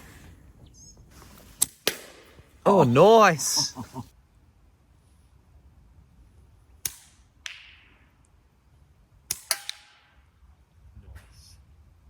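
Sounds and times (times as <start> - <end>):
slingshot shots snapping: 6.8 - 7.6, 9.3 - 10.0.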